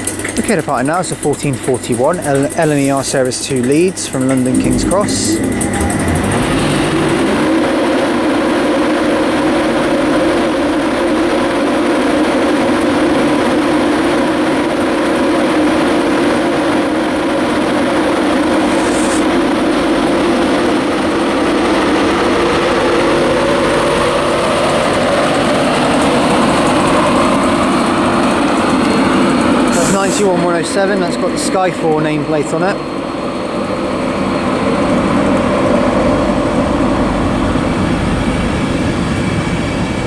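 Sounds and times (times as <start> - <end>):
electric train accelerating past: 1.1 - 14.5, 15.1 - 40.0
motor whine rising in pitch: 3.8 - 8.7, 18.3 - 19.4.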